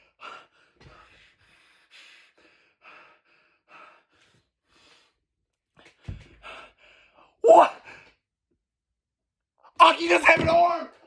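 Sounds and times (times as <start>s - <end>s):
man breathing hard: 0.0s - 5.2s, 5.8s - 8.1s.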